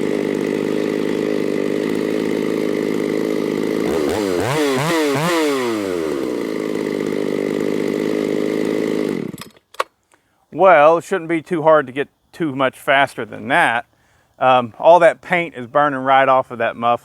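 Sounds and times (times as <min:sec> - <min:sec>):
chainsaw idling and revving: 0:00.0 - 0:09.7.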